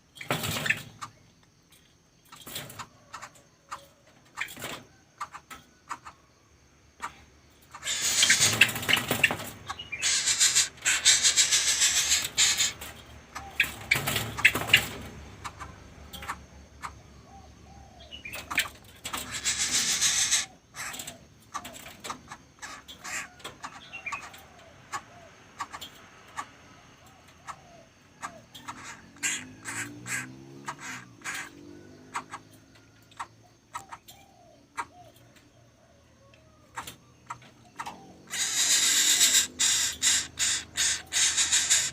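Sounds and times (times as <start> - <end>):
bird chick hissing: 7.8 - 8.7, 10.0 - 12.8, 19.2 - 20.6, 38.3 - 41.9.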